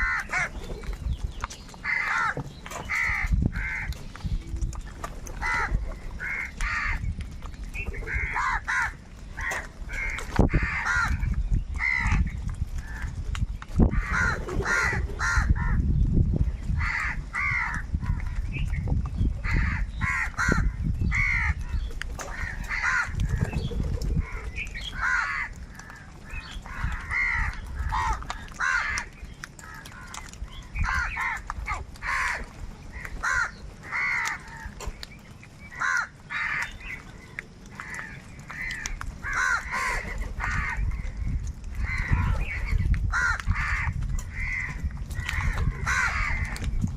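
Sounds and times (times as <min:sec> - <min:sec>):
crows cawing: 0:00.0 - 0:00.6, 0:01.8 - 0:04.0, 0:05.4 - 0:07.1, 0:08.0 - 0:13.2, 0:13.9 - 0:15.9, 0:16.8 - 0:18.4, 0:19.4 - 0:21.7, 0:22.3 - 0:23.5, 0:24.2 - 0:34.8, 0:35.7 - 0:46.6.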